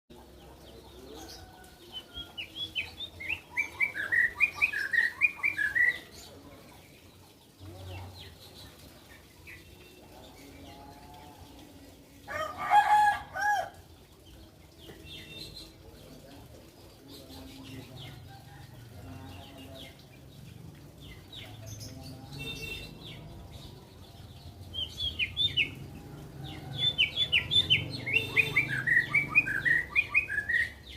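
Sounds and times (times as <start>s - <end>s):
birds chirping: 0.1s - 30.9s
loud full bird call: 26.6s - 30.9s.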